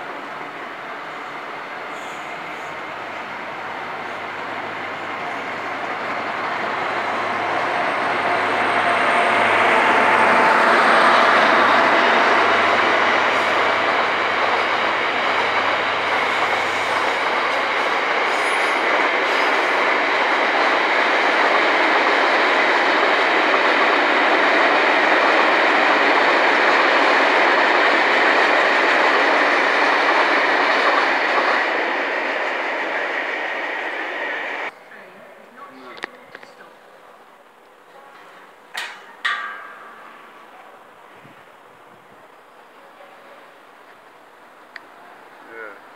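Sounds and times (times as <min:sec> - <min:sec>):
passenger train passing: 0:00.0 - 0:45.9
freight train wheels clattering: 0:38.1 - 0:40.3.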